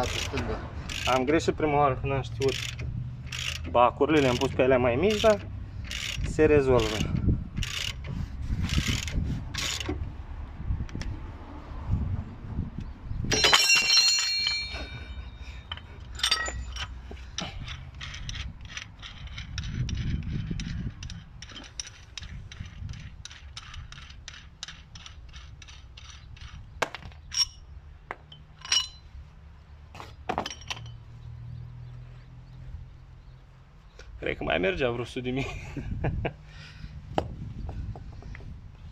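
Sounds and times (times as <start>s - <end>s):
ratchet wrench clicking: 0.0s - 1.4s, 2.3s - 9.9s, 16.0s - 27.6s
ringing metal clank: 13.3s - 16.9s, 28.3s - 29.1s.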